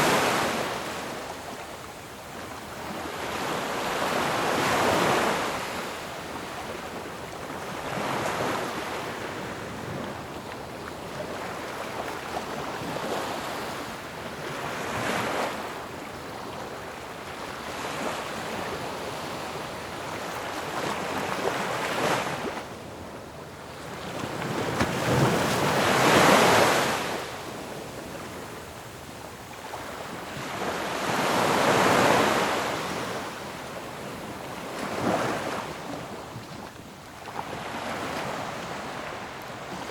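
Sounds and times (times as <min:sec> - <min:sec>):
ocean waves crashing on shore: 0:00.0 - 0:39.9.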